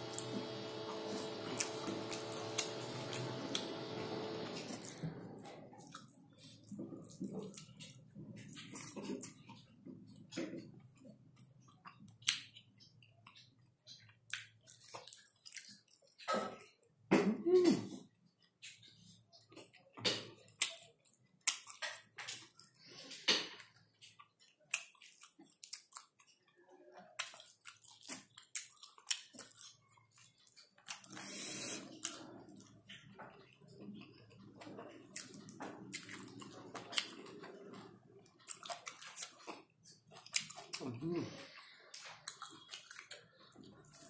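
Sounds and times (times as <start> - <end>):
wet chewing and lip-smacking: 5.8 - 16.9, 18.4 - 44.0
slurping noodles: 31.0 - 32.5.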